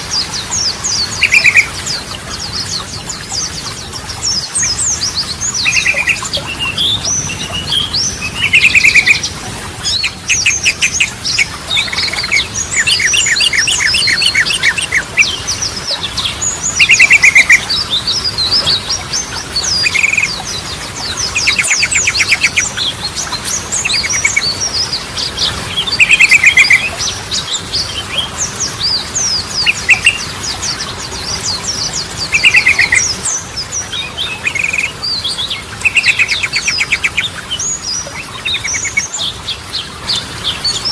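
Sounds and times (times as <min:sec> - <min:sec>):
bird singing rattling trills: 0:00.0 - 0:40.9
high bird chirps: 0:09.9 - 0:15.4, 0:16.8 - 0:20.4, 0:32.2 - 0:39.2.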